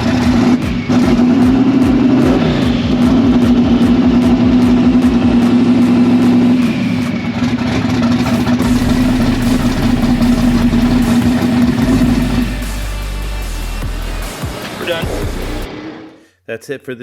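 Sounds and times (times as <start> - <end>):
car engine running: 0.0 - 15.7.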